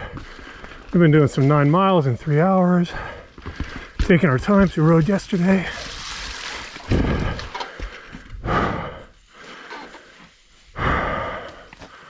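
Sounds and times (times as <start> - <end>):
heavy hoarse breathing: 0.0 - 1.0, 2.2 - 4.1, 6.9 - 12.0.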